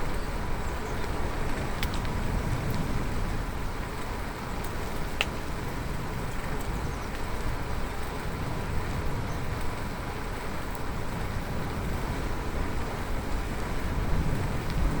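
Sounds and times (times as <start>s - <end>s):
bicycle road noise: 0.0s - 15.0s
wind rumble on microphone: 0.0s - 15.0s
faint ticks: 4.6s - 5.4s.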